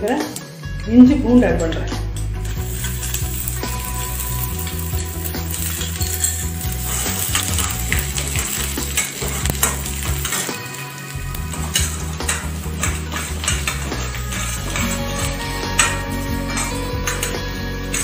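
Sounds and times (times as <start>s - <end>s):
ginger and garlic sizzling in oil: 2.4s - 18.0s
ladle stirring and scraping pan: 2.4s - 18.0s.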